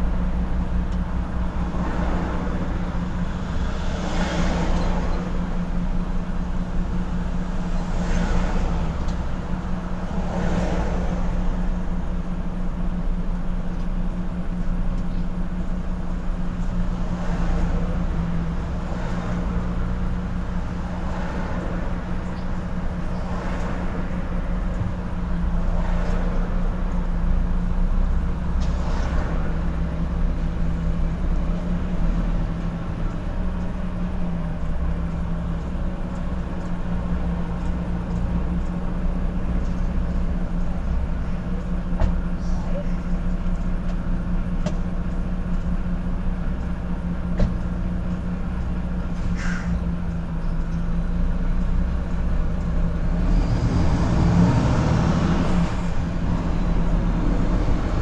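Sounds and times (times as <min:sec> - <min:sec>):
road rumble: 0:00.0 - 0:58.0
truck engine droning: 0:00.0 - 0:58.0.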